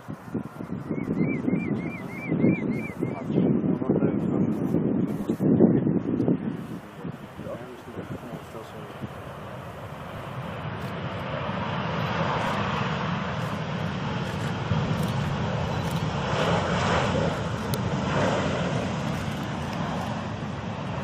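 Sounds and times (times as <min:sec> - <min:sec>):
jet airliner passing low: 0:00.0 - 0:21.0.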